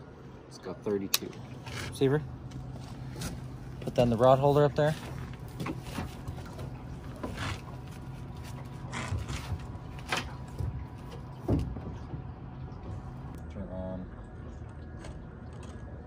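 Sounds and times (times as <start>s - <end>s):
boat motor running: 0.0s - 16.0s.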